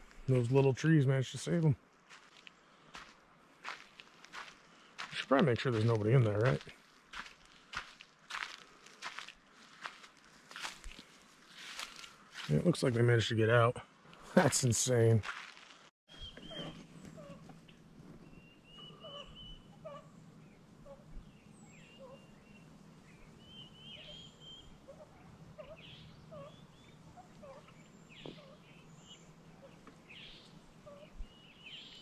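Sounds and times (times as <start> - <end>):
birdsong chirps and trills: 16.1 - 32.0.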